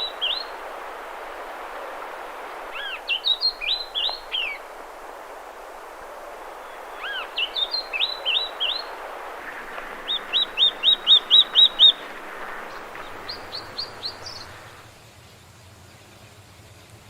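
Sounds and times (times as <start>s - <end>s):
bird whistling rising notes: 0.0s - 1.0s, 2.7s - 4.8s, 6.5s - 14.9s
background hiss: 0.0s - 17.0s.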